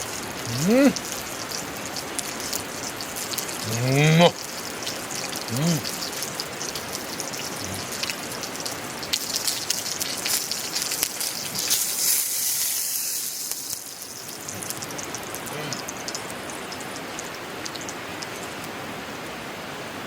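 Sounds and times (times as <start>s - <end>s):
sharp crackling pops: 0.0s - 18.8s
food sizzling in hot oil: 0.0s - 19.0s.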